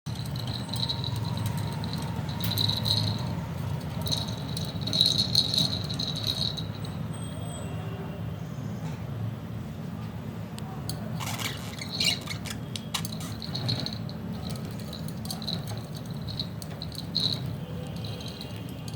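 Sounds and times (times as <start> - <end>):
bell toy jingling: 0.1 - 7.1, 11.2 - 18.9.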